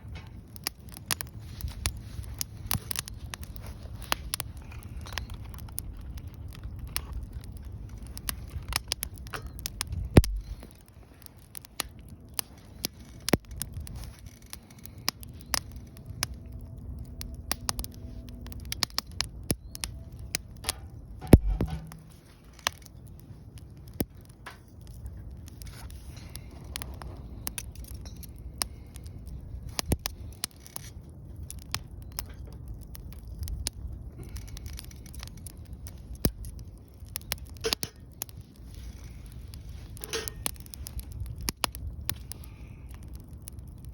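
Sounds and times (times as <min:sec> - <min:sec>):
wood fire crackling: 0:00.0 - 0:43.9
heavy dull thumps: 0:21.2 - 0:22.1.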